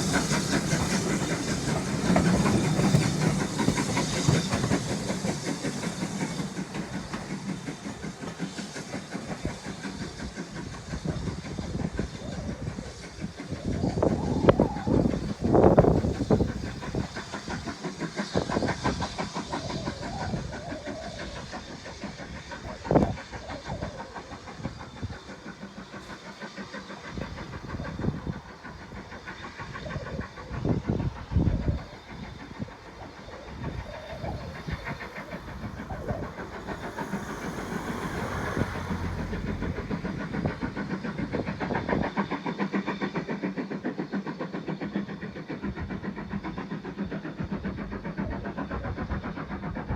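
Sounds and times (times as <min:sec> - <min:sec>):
locomotive engine beat: 0:00.0 - 0:23.4.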